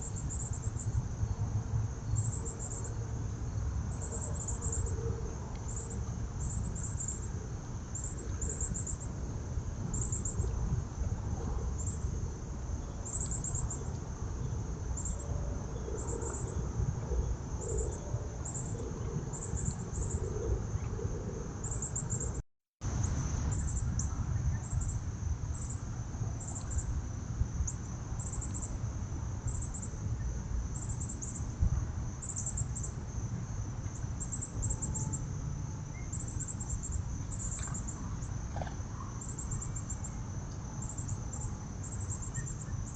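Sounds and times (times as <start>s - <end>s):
insects chirping in pulsed bursts: 0.0s - 42.9s.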